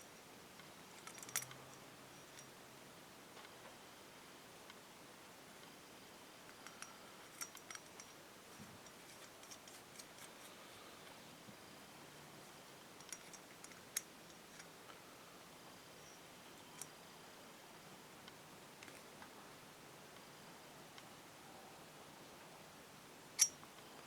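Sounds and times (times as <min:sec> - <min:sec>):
small metal parts clicking: 0:01.0 - 0:02.5, 0:06.5 - 0:08.1, 0:13.0 - 0:14.7, 0:23.4 - 0:23.6.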